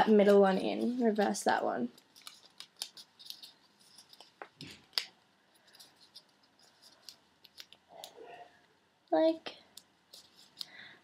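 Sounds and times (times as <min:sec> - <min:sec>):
paper crinkling: 0:00.0 - 0:08.4, 0:09.7 - 0:10.9
paper folds clicking: 0:00.8 - 0:08.2, 0:09.7 - 0:10.8.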